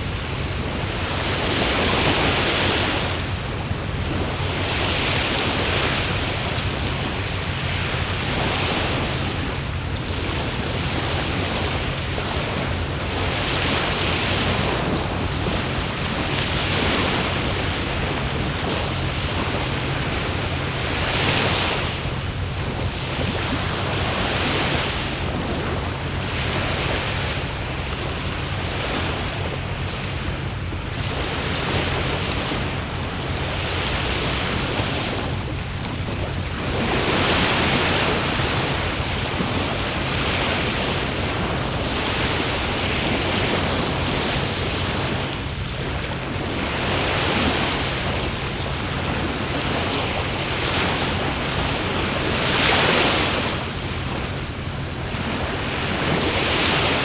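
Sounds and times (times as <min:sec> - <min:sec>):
fire crackles: 0:00.0 - 0:36.9, 0:42.5 - 0:47.0.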